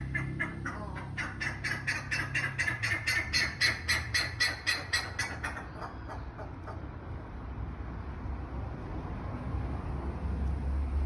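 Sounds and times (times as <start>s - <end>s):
bird harsh calls: 0.0s - 6.9s.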